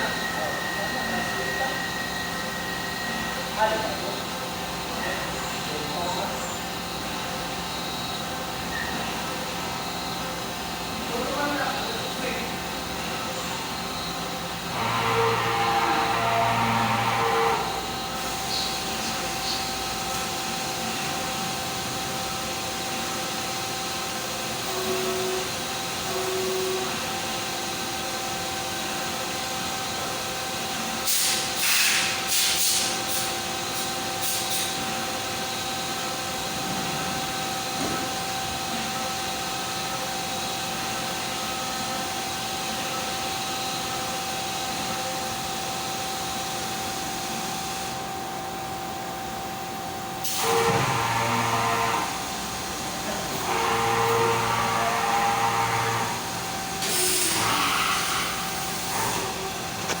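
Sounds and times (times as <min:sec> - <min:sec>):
machine whine: 0:00.0 - 1:00.0
machine hiss: 0:31.0 - 0:35.3, 0:55.6 - 0:59.8
short hissing bursts: 0:31.1 - 0:33.3.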